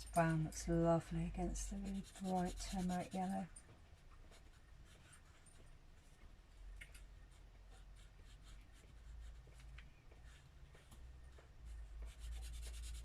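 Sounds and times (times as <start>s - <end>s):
pen scratching on paper: 1.8s - 3.4s, 12.1s - 13.0s.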